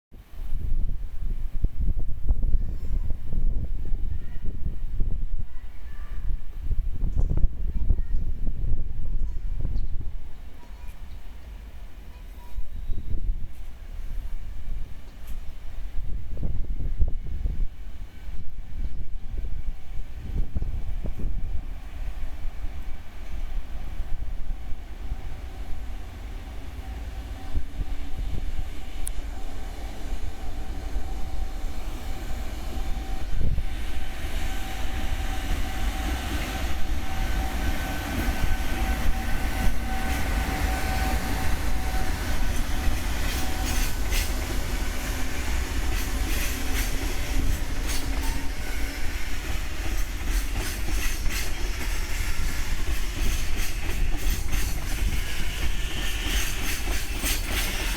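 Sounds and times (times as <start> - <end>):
freight train rumbling: 0.1 - 57.9
wheels clicking over rail joints: 42.4 - 57.9.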